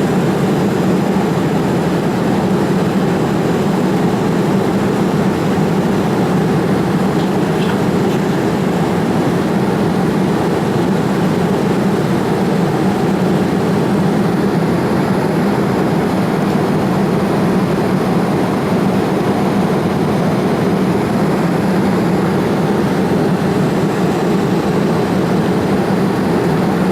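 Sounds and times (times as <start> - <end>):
airplane cabin engine noise: 0.0 - 26.9.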